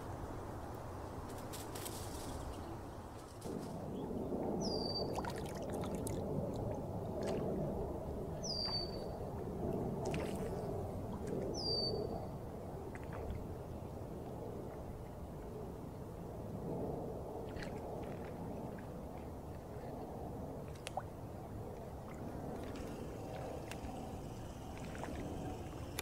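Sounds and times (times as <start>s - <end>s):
low rushing noise: 21.9s - 26.0s.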